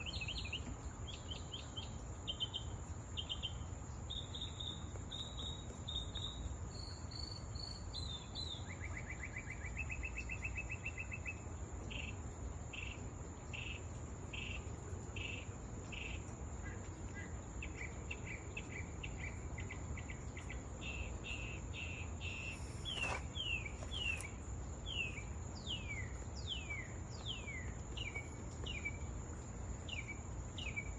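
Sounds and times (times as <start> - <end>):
songbirds chirping and trilling: 0.0 - 30.9.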